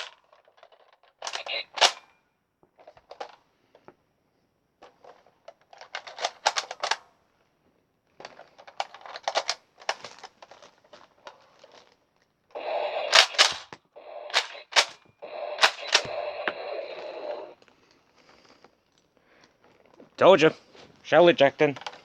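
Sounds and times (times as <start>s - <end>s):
toy shotgun plastic clicks: 0.0s - 2.1s, 12.9s - 17.5s.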